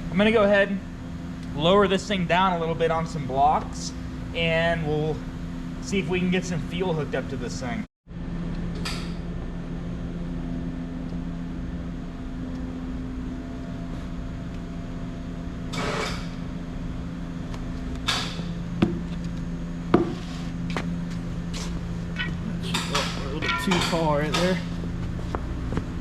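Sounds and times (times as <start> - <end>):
sharp knocks: 22.8 - 24.6.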